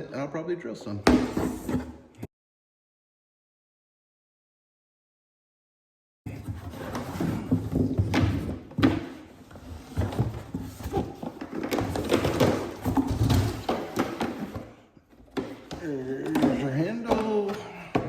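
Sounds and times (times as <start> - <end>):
hard plastic parts knocking and clicking: 9.9 - 18.0.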